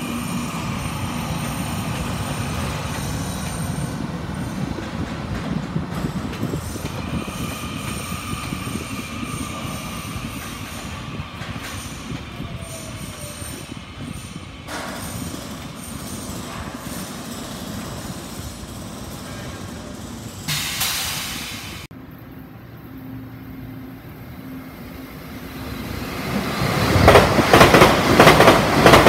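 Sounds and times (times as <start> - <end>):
train rolling with low rumble: 0.0 - 29.0
faint high wheel squeal: 7.1 - 20.6
loud hiss: 14.8 - 21.9.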